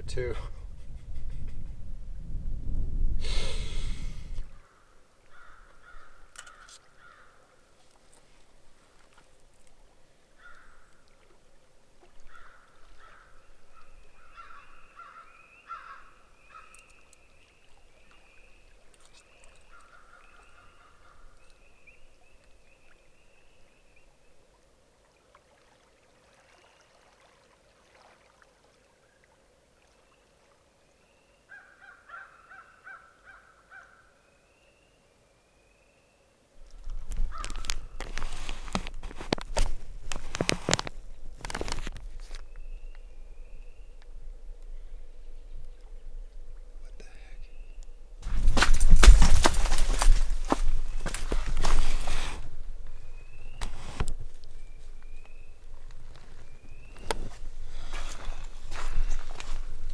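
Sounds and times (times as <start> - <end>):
birds calling: 4.6 - 7.6, 10.4 - 11.2, 12.0 - 24.4, 31.0 - 35.0, 37.0 - 38.8, 46.8 - 59.9.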